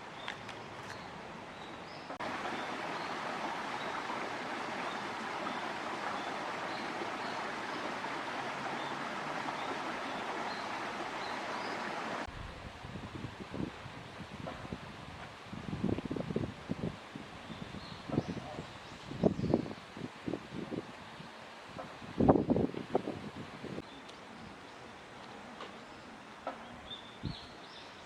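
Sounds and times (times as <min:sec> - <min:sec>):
stream water rushing: 0:02.2 - 0:12.3
wind buffeting microphone: 0:21.8 - 0:23.8.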